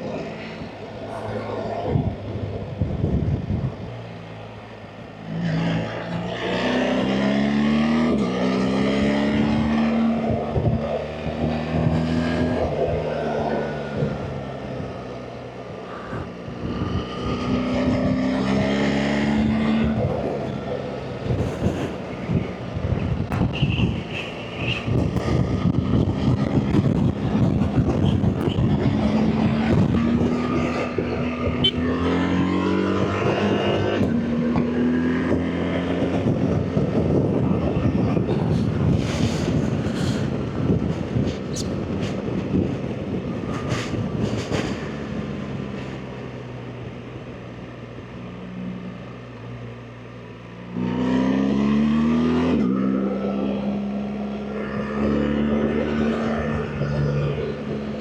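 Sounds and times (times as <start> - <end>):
wind rush on microphone: 0.0 - 48.3
motorcycle engine revving: 16.7 - 41.6, 50.6 - 58.0.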